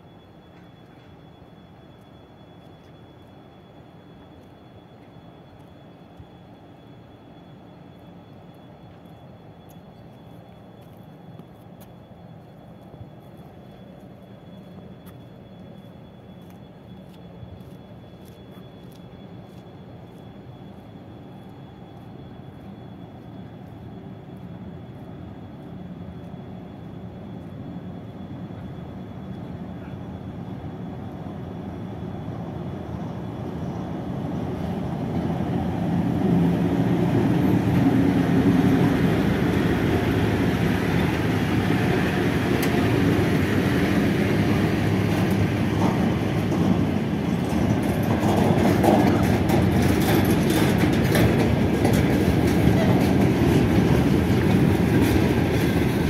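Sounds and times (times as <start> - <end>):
locomotive rumble: 3.8 - 56.0
freight wagons rolling: 37.1 - 56.0.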